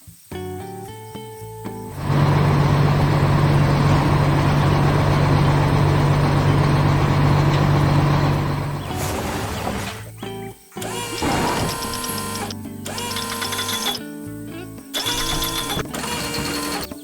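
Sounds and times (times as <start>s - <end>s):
heavy vehicle engine running: 1.9s - 10.2s, 10.8s - 14.0s, 15.0s - 17.0s.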